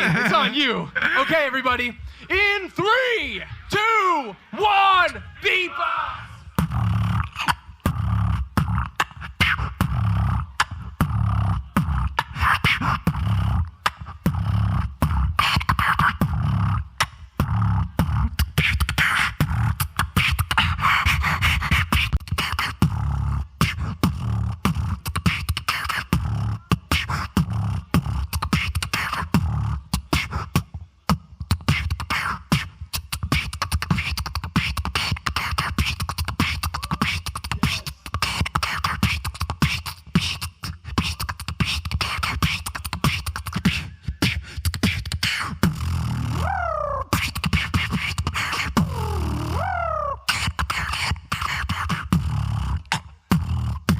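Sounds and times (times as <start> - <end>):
beatboxing through a pa: 0.0 - 1.3, 6.2 - 53.9
heavy low bass: 48.8 - 50.2.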